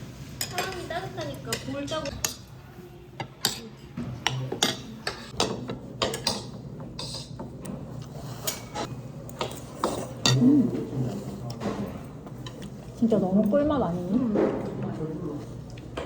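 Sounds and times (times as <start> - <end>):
dishes and cutlery clinking: 0.4 - 2.6, 3.2 - 12.9.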